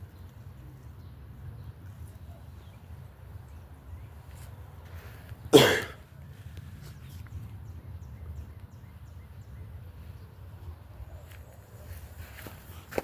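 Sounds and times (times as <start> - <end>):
person coughing: 5.5 - 6.0.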